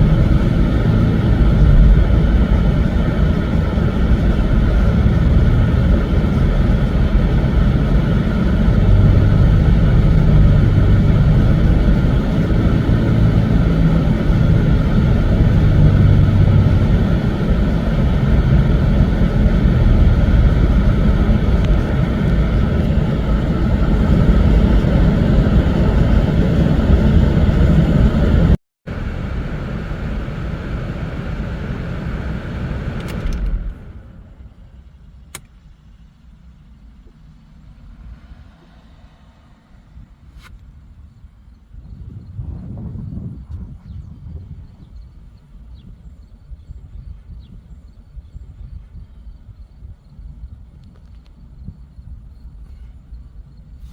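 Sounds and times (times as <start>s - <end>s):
car engine idling: 0.0s - 41.2s.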